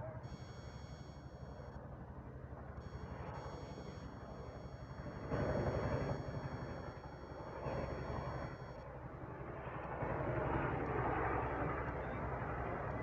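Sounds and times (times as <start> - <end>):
helicopter rotor beat: 0.0 - 13.0
helicopter engine rumble: 0.1 - 9.2.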